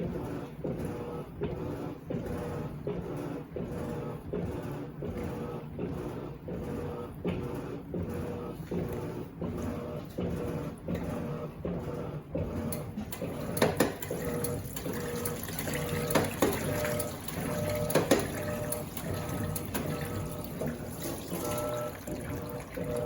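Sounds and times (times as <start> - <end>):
washing machine motor: 0.0 - 23.0
water sloshing: 13.9 - 23.0
water splashes: 14.0 - 23.0.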